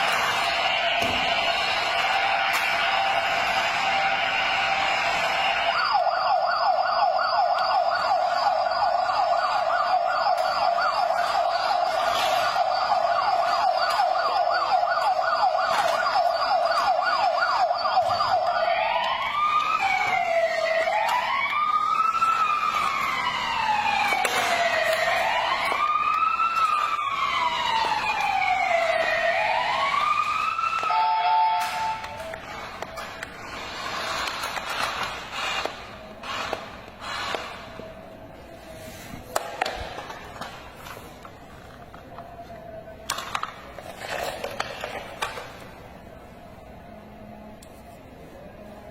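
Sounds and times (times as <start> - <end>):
toy electronic siren: 0.1 - 33.3.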